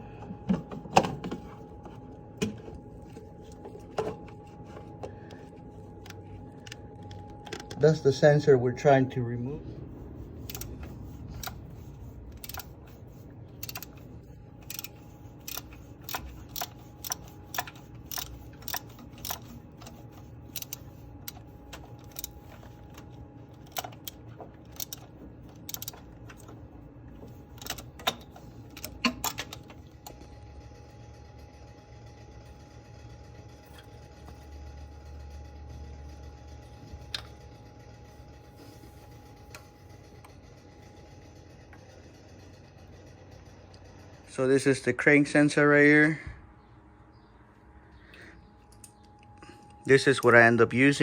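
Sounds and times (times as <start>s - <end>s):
steady low hum: 0.0s - 51.0s
ratchet metallic clicks: 10.4s - 13.0s, 13.6s - 26.6s, 27.5s - 30.2s.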